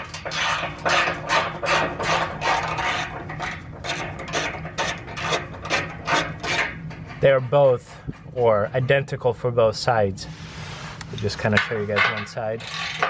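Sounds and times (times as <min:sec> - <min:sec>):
ratchet wrench rasping: 0:12.6 - 0:13.0.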